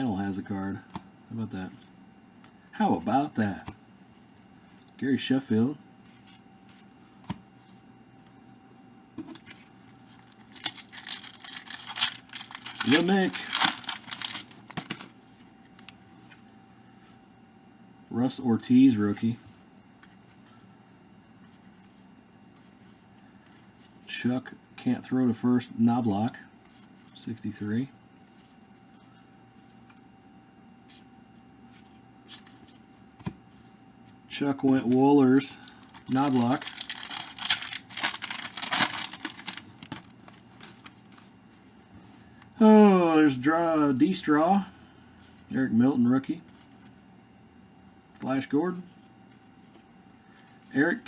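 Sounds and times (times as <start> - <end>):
faint steady hum: 0.0 - 51.0
wrapper rustling and crinkling: 9.4 - 16.4, 34.8 - 41.4.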